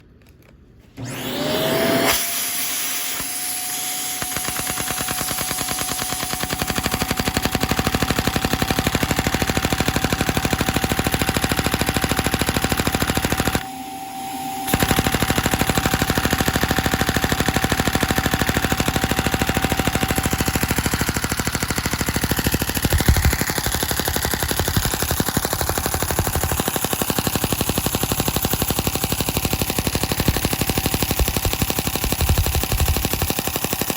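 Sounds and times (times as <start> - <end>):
toy engine rapid clatter: 4.0 - 13.6, 14.7 - 33.9
rising whine: 13.6 - 15.5.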